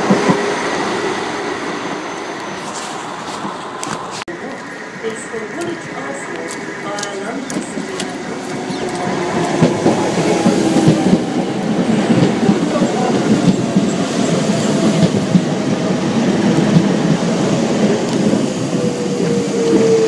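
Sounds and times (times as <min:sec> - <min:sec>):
train wheels clattering over rails: 0:05.1 - 0:20.0.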